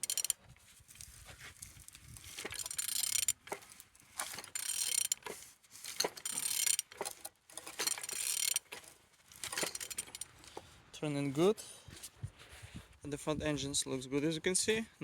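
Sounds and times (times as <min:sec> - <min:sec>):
ratchet clicks: 0:00.0 - 0:10.6
engine turned over by hand: 0:00.0 - 0:10.7.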